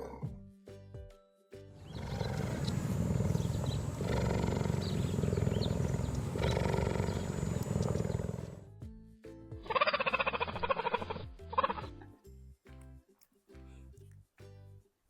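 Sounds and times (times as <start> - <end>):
big cat growling: 0.0 - 0.3, 1.8 - 8.6.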